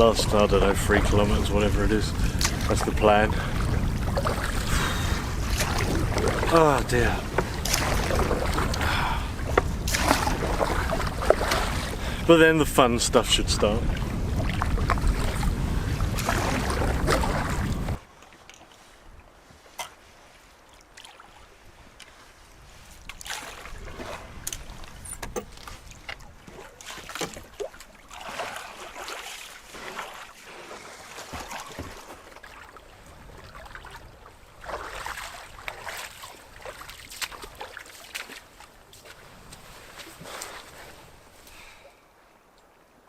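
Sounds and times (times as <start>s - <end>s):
low wind rumble: 0.0s - 18.1s
canoe paddles splashing water: 0.0s - 42.3s.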